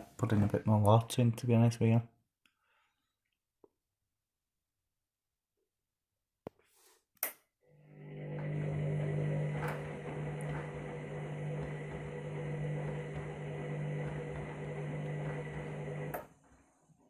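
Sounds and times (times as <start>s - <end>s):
washing machine humming: 7.9s - 16.3s.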